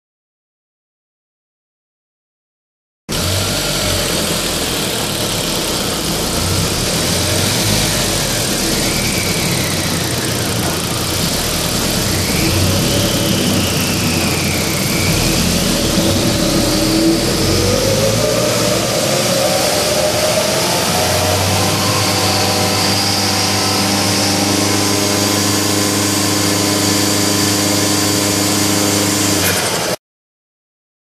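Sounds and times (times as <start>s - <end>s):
turbocharged engine whine: 3.1s - 30.0s.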